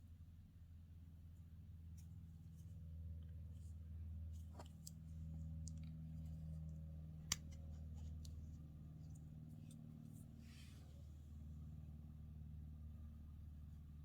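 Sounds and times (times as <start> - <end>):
low steady hum: 0.0 - 14.0
small clicks and ticks: 4.5 - 8.4.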